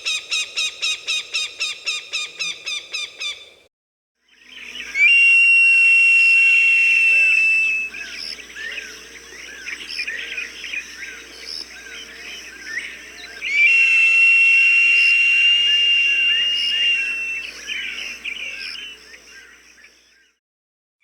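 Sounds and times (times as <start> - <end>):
hawk screaming: 13.5 - 17.6.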